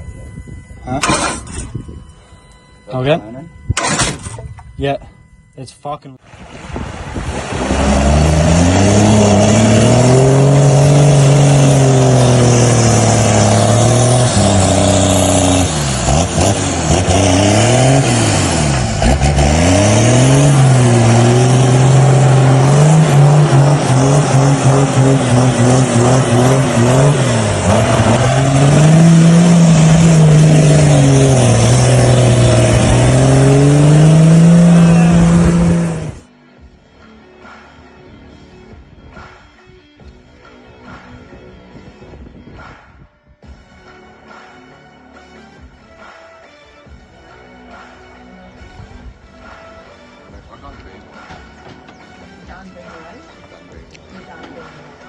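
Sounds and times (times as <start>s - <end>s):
vehicle engine revving: 6.6s - 36.3s.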